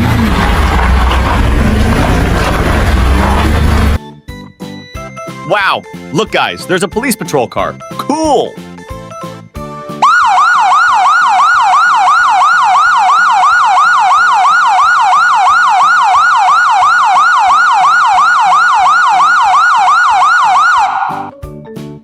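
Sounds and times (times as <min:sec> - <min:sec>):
police yelp siren: 0:10.0 - 0:21.3.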